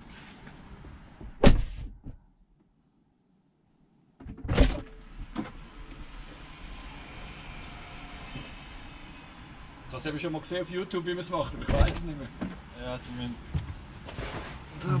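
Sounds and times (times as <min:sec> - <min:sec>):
car door thudding shut: 0:01.3 - 0:02.0.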